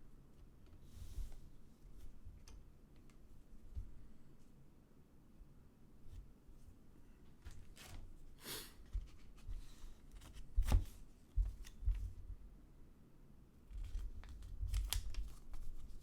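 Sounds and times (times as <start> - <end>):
light taps and clicks of cards: 8.9 - 12.2.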